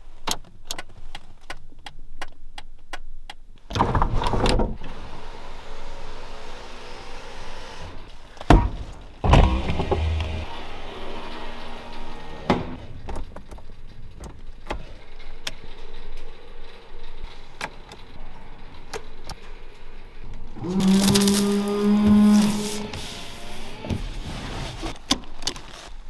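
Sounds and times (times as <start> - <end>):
car engine revving: 9.2 - 13.0, 20.4 - 24.9.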